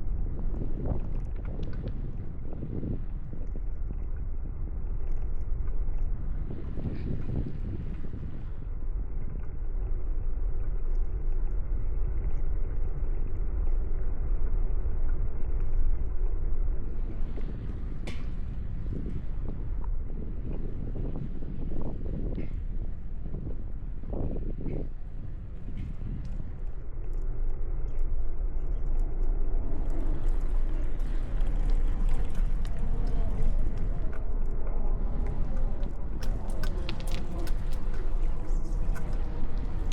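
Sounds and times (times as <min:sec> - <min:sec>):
bicycle road noise: 0:00.0 - 0:39.9
wind rumble: 0:00.0 - 0:39.9
road noise: 0:28.9 - 0:39.9
traffic noise: 0:29.1 - 0:39.9.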